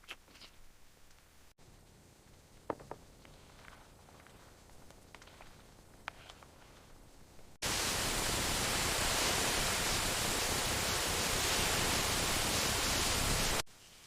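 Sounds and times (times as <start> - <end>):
heavy rain: 7.6 - 13.7.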